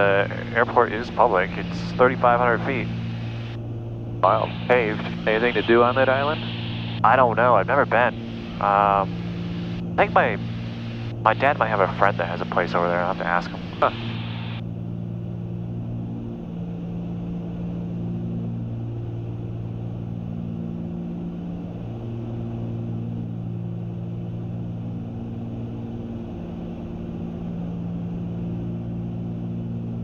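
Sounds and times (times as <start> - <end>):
airplane engine and propeller hum: 0.0 - 30.0.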